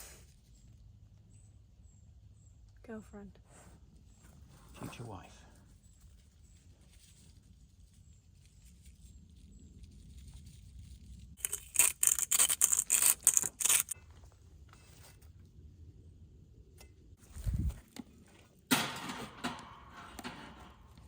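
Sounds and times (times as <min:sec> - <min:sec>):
sharp rasping scrapes: 0:11.4 - 0:14.0.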